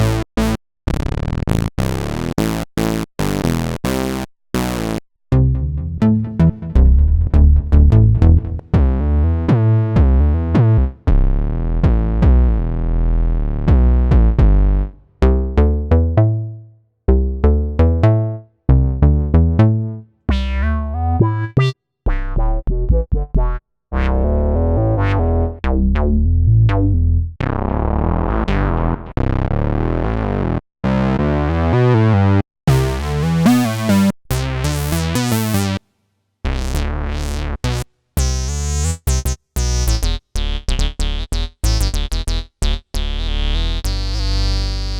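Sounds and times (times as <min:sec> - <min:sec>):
synthesizer note phrases: 0:05.4 - 0:08.8.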